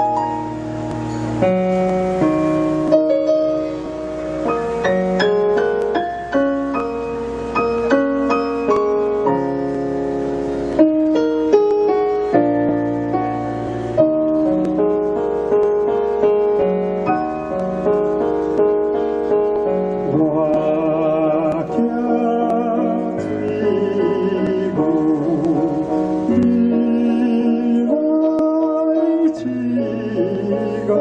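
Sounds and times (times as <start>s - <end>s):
slow piano chords: 0.0s - 31.0s
person singing with vibrato: 20.0s - 31.0s.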